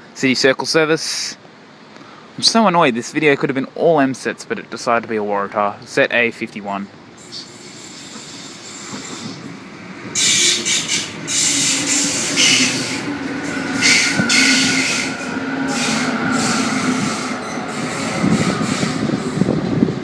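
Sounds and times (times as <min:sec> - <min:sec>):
electric train pulling in: 0:07.0 - 0:20.0
high whine: 0:07.2 - 0:20.0.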